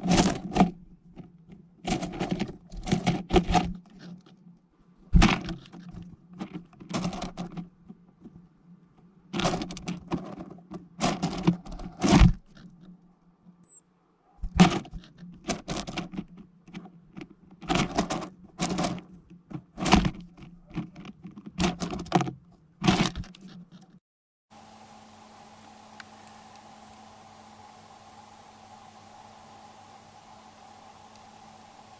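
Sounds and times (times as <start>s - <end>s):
birds pecking on plastic feeder: 24.6s - 31.9s.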